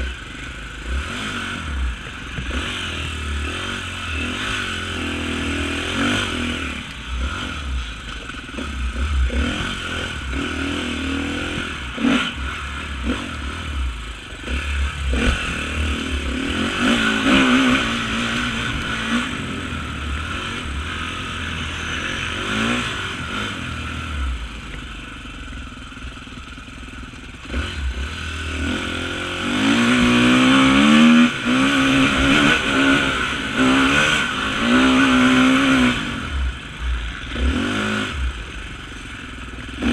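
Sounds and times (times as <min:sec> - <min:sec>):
off-road motorcycle engine revving: 0:00.0 - 0:39.9.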